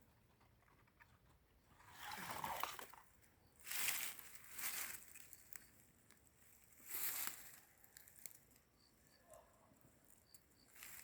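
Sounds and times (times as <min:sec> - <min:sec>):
footsteps crunching dry leaves: 0:03.6 - 0:05.6, 0:06.5 - 0:08.3, 0:10.8 - 0:11.0.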